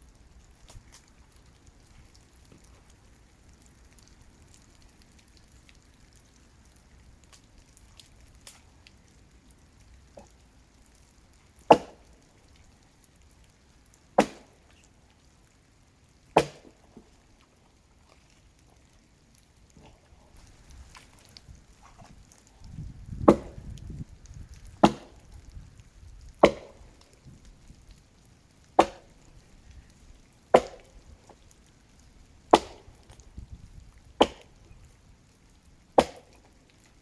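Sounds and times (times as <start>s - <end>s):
axe chopping tree trunk: 11.7s - 12.1s, 14.2s - 14.6s, 16.4s - 16.7s, 23.1s - 23.7s, 24.8s - 25.3s, 26.4s - 26.9s, 28.8s - 29.1s, 30.5s - 31.0s, 32.5s - 32.9s, 34.2s - 34.6s, 36.0s - 36.3s.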